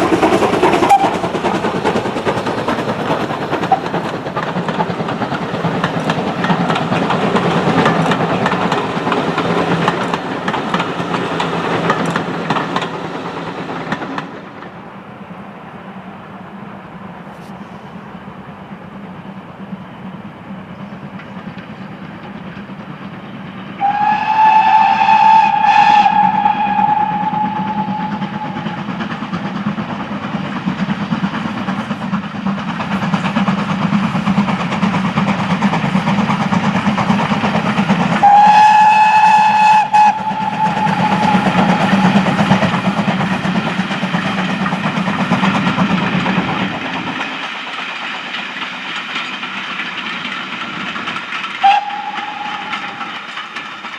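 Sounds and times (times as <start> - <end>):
train running noise: 0.0 - 53.9
steam locomotive whistle blasts: 0.8 - 1.2, 23.8 - 28.9, 38.2 - 42.6, 51.6 - 53.2.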